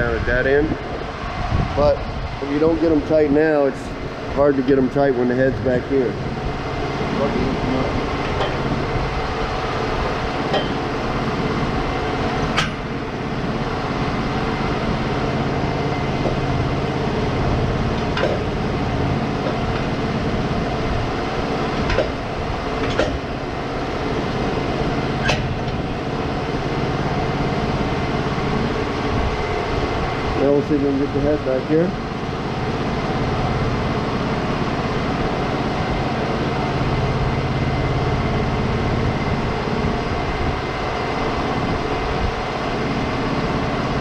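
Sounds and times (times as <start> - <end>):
sawmill engine idling: 0.0 - 44.0
sharp metal knocks: 10.5 - 10.9, 12.4 - 12.9, 18.0 - 18.6, 21.8 - 22.2, 22.8 - 23.3.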